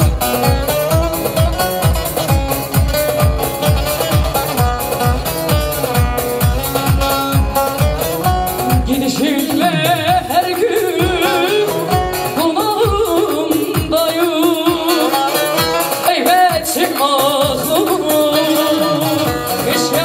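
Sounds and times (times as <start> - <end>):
folk band playing: 0.0 - 20.0
steady drum beat: 0.0 - 20.0
person singing ornamented melody: 8.8 - 20.0.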